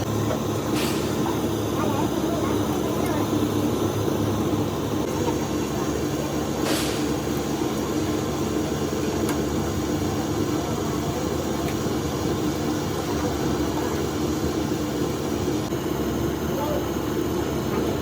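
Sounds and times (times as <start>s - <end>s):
machine droning: 0.0s - 18.0s
short hiss: 6.6s - 7.2s.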